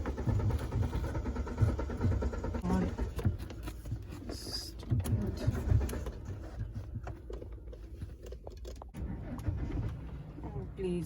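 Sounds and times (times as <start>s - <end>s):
starter motor cranking engine: 0.0s - 10.8s.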